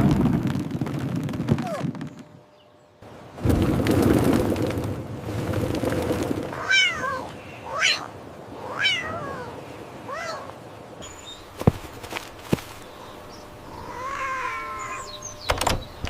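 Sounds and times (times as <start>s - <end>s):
cat meowing: 6.6s - 10.5s, 13.7s - 15.2s.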